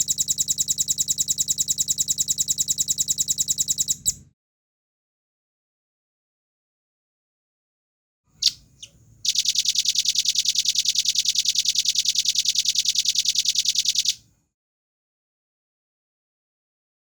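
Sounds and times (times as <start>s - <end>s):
bird singing trill: 8.4s - 14.1s.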